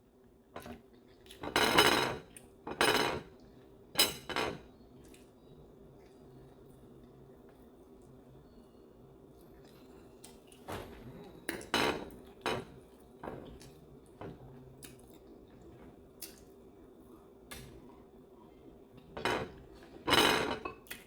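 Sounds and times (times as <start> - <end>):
cutlery clinking on dish: 1.4 - 3.3, 4.0 - 4.6, 11.5 - 13.4, 19.2 - 20.8.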